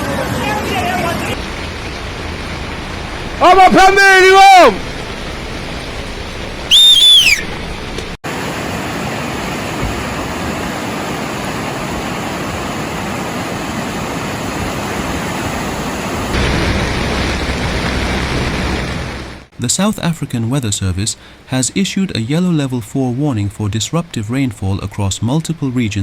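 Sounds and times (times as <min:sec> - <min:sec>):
floodwater rushing: 0:01.2 - 0:19.5
high whistle falling in pitch: 0:06.7 - 0:07.6.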